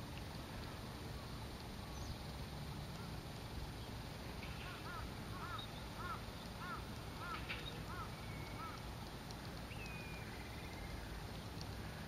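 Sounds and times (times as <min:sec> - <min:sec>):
bird chirping: 0:04.6 - 0:08.8, 0:09.7 - 0:11.1.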